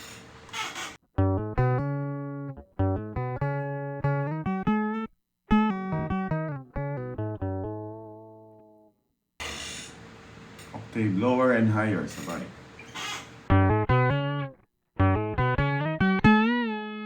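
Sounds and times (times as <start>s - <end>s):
electric guitar riff: 1.2s - 8.6s, 13.5s - 17.0s.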